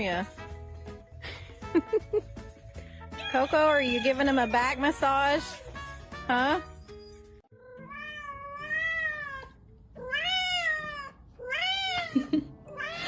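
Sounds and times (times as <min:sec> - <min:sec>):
cat meowing: 0:07.5 - 0:12.1, 0:12.7 - 0:13.0.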